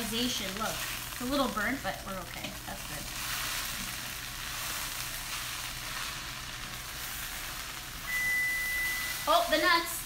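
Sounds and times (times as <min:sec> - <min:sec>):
food sizzling in a skillet: 0:00.0 - 0:10.0.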